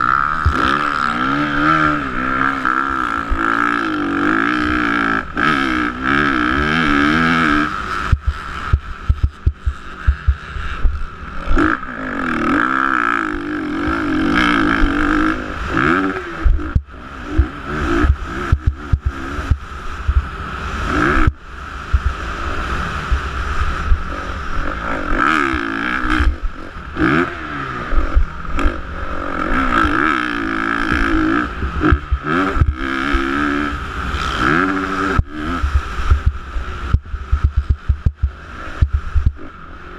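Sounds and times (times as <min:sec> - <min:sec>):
dirt bike engine revving: 0:00.0 - 0:39.9
low thumps: 0:08.1 - 0:11.0, 0:16.4 - 0:20.3, 0:21.2 - 0:22.2, 0:35.2 - 0:39.4.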